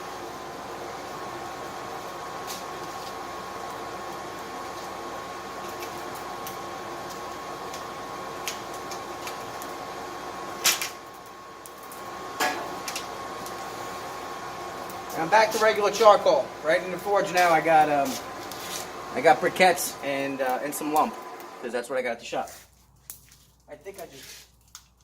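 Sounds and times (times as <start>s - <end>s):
hair dryer whirring: 11.9s - 22.0s.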